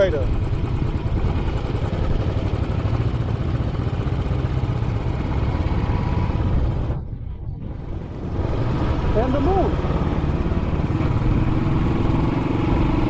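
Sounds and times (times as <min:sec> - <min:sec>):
motorcycle engine throbbing: 0:00.0 - 0:13.0
wind noise: 0:04.9 - 0:13.0.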